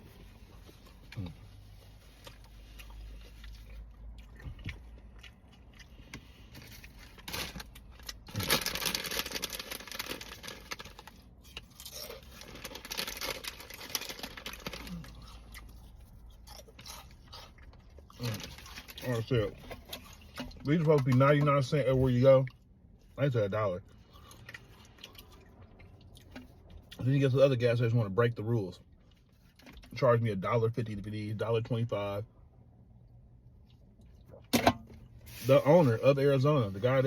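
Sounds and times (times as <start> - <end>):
crunchy chewing: 0.6 - 20.7, 23.9 - 27.0.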